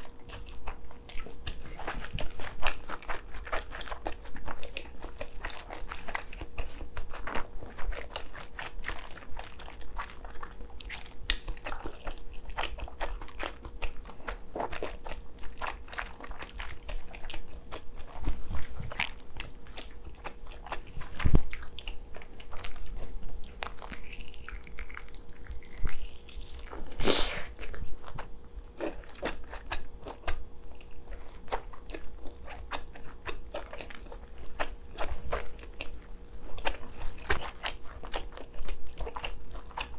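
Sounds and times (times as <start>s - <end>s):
biting and chewing: 0.0s - 39.9s.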